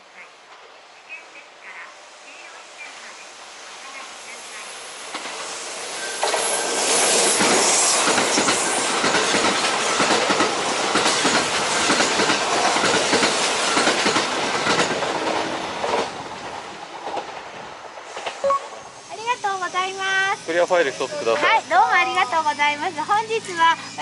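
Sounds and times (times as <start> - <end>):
electric train passing: 0.0 - 24.0
wheels clattering over rail joints: 7.4 - 18.4.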